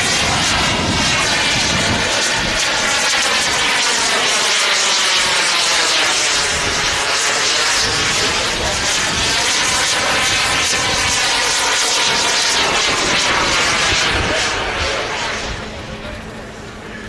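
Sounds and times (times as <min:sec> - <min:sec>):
wind rumble on microphone: 0:00.0 - 0:03.7, 0:06.4 - 0:07.2, 0:07.8 - 0:17.0
model airplane engine: 0:00.0 - 0:17.0.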